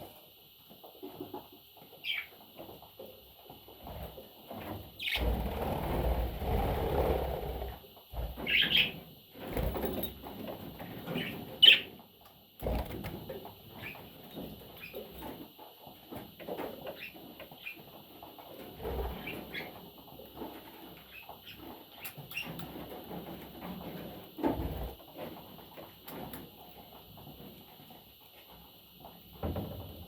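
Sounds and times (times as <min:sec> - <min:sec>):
budgerigar chirping: 0:11.6 - 0:11.9.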